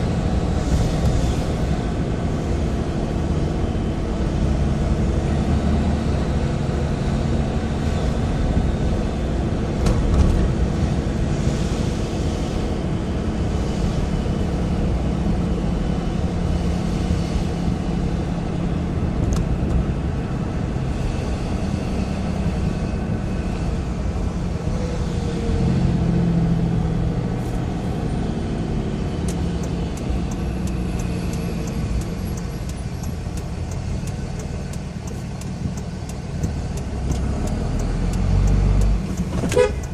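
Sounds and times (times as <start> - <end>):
diesel engine running: 0.0 - 39.9
quick regular ticking: 29.3 - 39.9.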